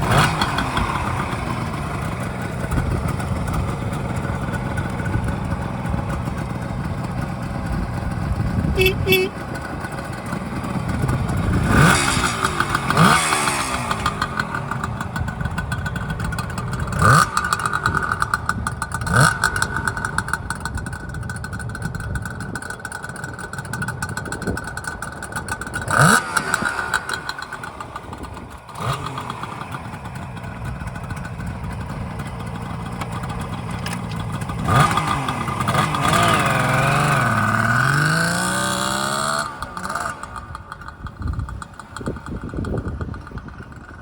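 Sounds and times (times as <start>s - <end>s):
engine revving on throttle blips: 0.0s - 4.2s, 7.8s - 20.9s, 25.7s - 29.7s, 33.8s - 43.4s
motorcycle engine idling: 0.0s - 44.0s.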